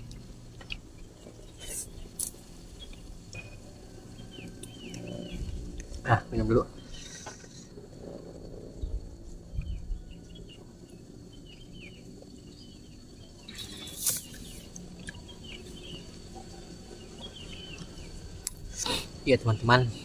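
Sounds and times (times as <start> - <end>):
small birds chirping: 0.0 - 7.8, 8.8 - 20.0.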